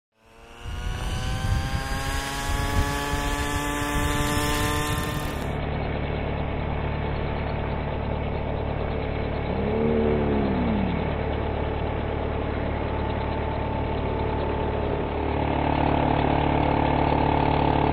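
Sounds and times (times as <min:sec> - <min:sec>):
whine rising and falling: 0:00.1 - 0:05.6, 0:08.9 - 0:14.2
model helicopter engine and rotors: 0:00.1 - 0:17.9.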